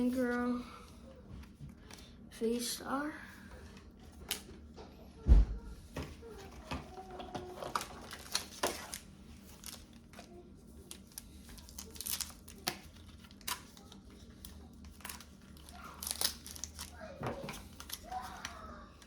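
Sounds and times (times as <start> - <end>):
foil wrapper crinkling and tearing: 7.0 - 19.0.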